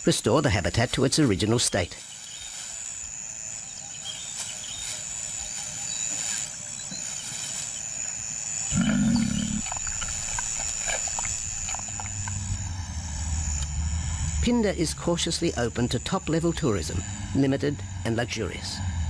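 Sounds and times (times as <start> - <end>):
low hum: 8.6 - 19.0
lion calling: 8.7 - 12.6.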